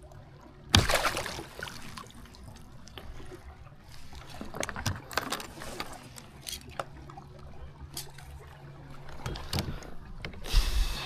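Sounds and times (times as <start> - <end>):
water trickling and lapping: 0.0 - 11.0
water splash: 0.7 - 2.3.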